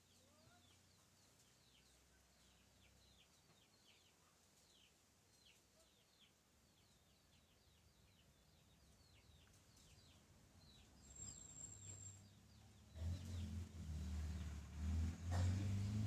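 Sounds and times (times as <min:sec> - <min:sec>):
birds chirping: 0:07.5 - 0:14.9
vehicle engine: 0:11.1 - 0:16.0.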